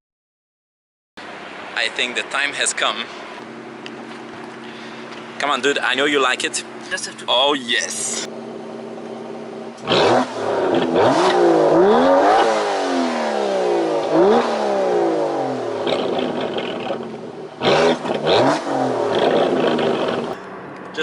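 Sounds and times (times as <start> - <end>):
car engine accelerating hard: 7.9 - 21.0.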